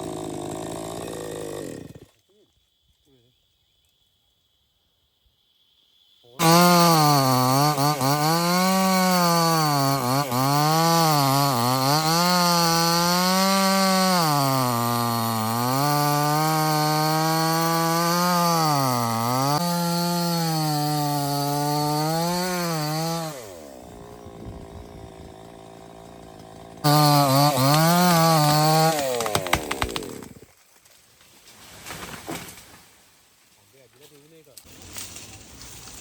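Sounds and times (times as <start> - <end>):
chainsaw running: 0.0 - 2.2, 6.4 - 30.5.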